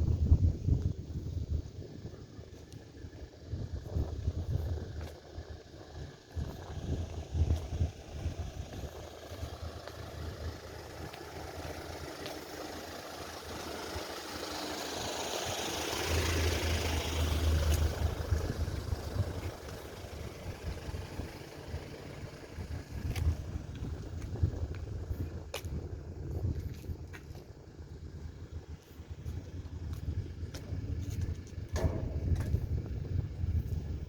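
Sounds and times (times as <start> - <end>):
engine passing by: 0.0 - 25.3.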